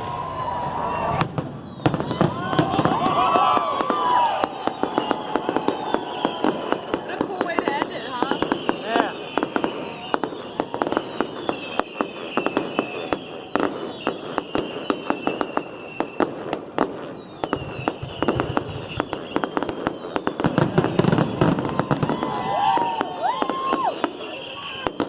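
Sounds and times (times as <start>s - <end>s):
fireworks crackling and banging: 0.0s - 25.0s
fireworks whistling: 0.0s - 25.0s.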